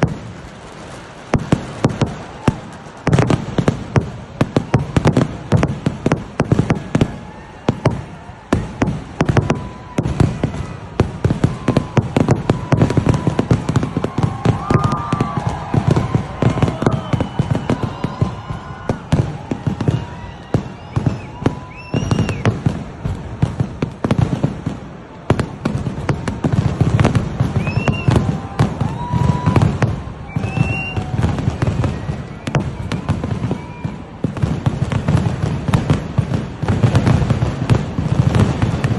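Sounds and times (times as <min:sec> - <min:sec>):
fireworks and firecrackers banging: 0:00.0 - 0:38.9.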